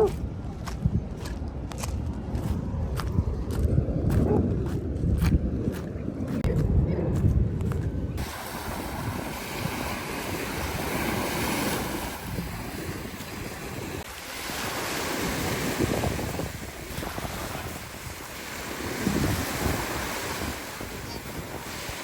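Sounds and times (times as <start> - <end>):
wind buffeting microphone: 0.0 - 22.0
surf breaking: 8.2 - 22.0.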